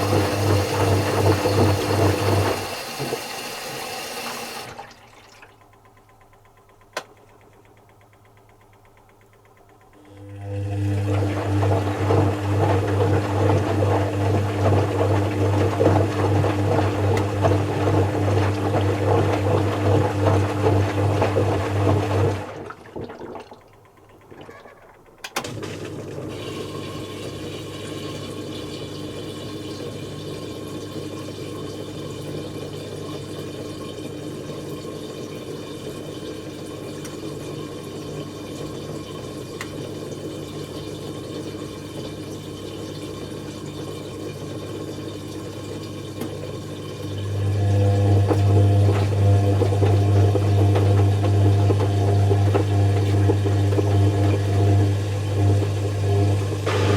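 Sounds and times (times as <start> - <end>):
drain pump humming: 0.0 - 56.9
water running into machine: 0.0 - 56.9
water rushing: 56.6 - 56.9.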